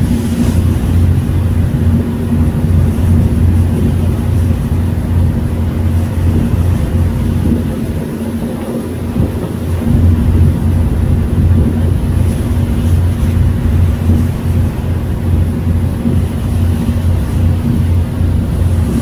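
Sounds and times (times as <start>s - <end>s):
ferry engine drone: 0.0s - 19.0s.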